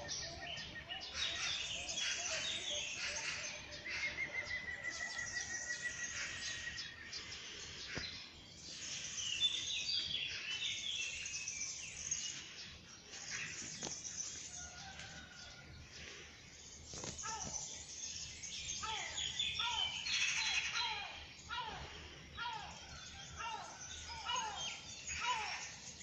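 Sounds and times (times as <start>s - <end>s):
bird trill: 0.0s - 7.4s, 16.9s - 21.9s
songbirds singing and chirping: 0.0s - 26.0s.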